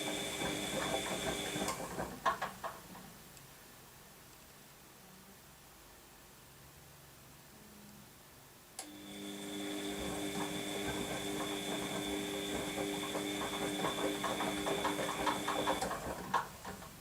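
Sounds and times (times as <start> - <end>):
washing machine drum turning: 0.0 - 2.8, 9.3 - 17.0.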